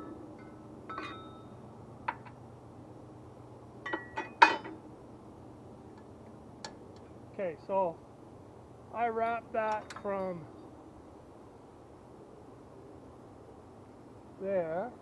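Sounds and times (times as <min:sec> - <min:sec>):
metal tools clinking together: 0:00.9 - 0:01.4.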